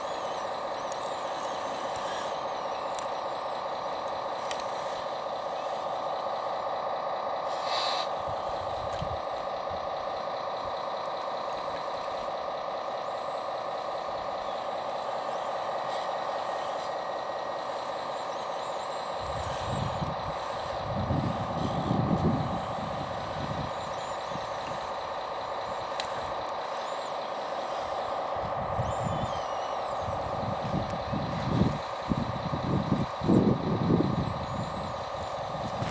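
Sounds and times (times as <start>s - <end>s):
small electric motor whine: 0.0s - 35.9s
low rumbles: 8.2s - 35.9s.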